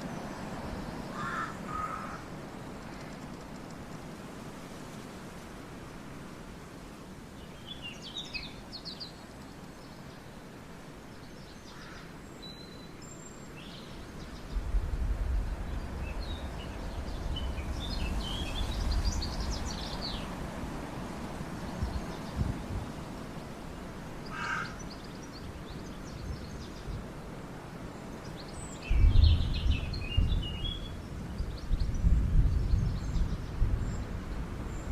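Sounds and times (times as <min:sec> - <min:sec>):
birds chirping: 0:00.0 - 0:04.0, 0:15.5 - 0:20.4
outdoor background hiss: 0:00.0 - 0:34.9.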